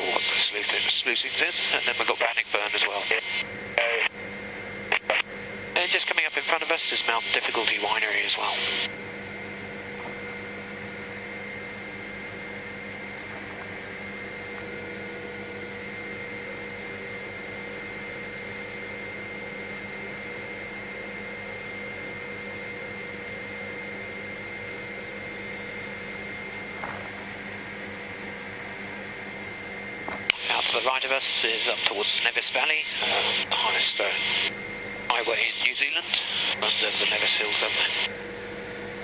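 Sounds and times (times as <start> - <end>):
helicopter cabin hum: 0.0 - 39.0.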